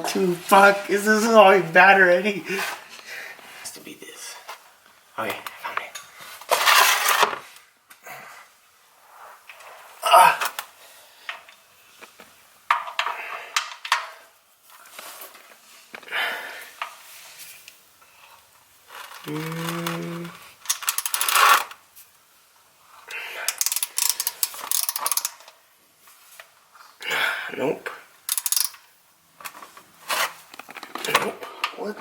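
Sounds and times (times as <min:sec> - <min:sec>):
person grunting: 0:10.0 - 0:10.5, 0:19.2 - 0:20.4
wrench clinking against metal: 0:28.3 - 0:28.8.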